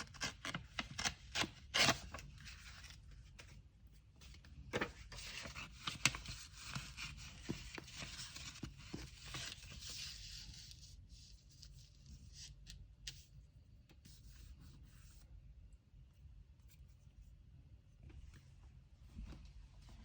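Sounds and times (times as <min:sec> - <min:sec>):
paper rustling and scraping: 0:04.2 - 0:13.4.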